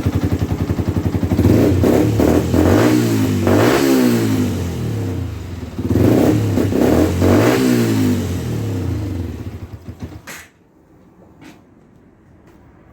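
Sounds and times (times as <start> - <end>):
motorcycle engine revving: 0.0 - 10.3.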